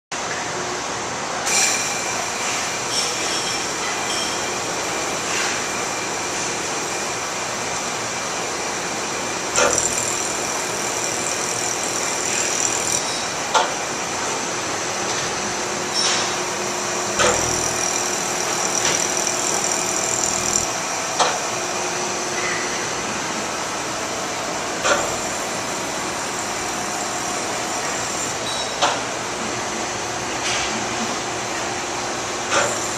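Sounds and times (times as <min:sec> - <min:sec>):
welding machine hum and hiss: 0:00.2 - 0:32.9
sharp machine clicks: 0:09.6 - 0:13.2, 0:17.2 - 0:20.7.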